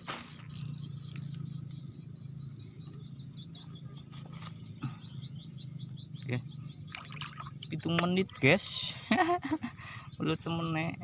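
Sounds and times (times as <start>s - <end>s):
insects chirping: 0.0s - 11.0s
steady low hum: 0.0s - 11.0s.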